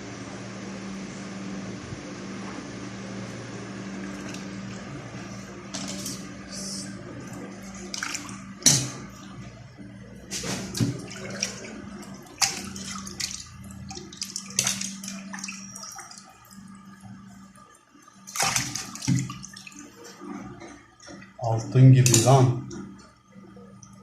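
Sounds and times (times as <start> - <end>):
water running and splashing: 7.2 - 9.2, 10.4 - 21.3.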